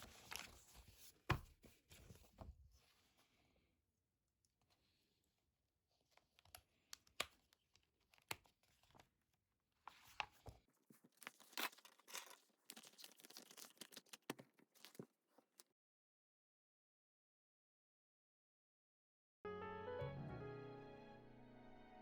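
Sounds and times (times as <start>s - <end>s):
crinkling and tearing: 10.8s - 15.7s.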